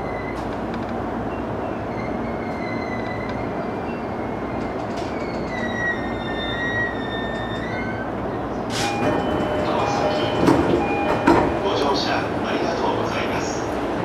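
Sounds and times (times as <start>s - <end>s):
electric train running on rails: 0.0s - 14.0s
high-pitched wheel squeal: 1.3s - 10.2s.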